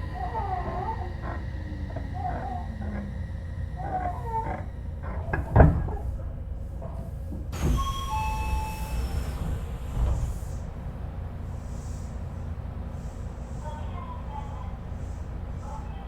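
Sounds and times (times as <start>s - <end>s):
low rumble of stationary train: 0.0s - 16.0s
train doors knocking: 5.0s - 10.7s.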